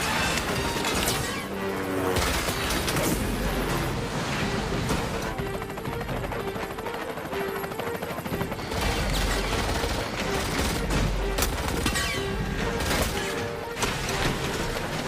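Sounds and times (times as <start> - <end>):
tense music score: 0.0 - 15.0
rapid automatic gunfire: 8.6 - 12.0.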